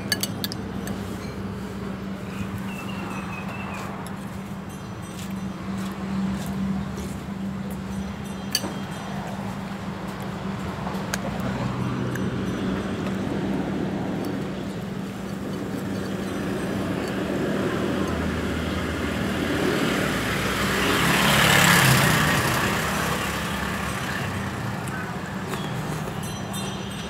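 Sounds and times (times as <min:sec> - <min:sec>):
road traffic hum: 0:00.0 - 0:27.0
vehicle passing close by: 0:16.2 - 0:26.1.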